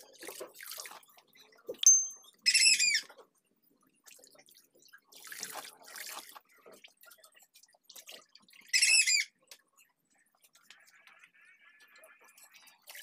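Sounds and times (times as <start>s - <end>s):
bird squawk: 8.8s - 9.3s.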